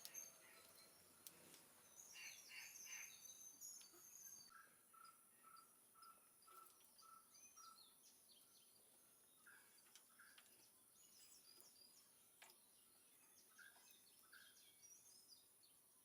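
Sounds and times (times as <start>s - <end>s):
steady high-pitched hiss: 0.0s - 4.6s
birds chirping: 0.0s - 16.0s.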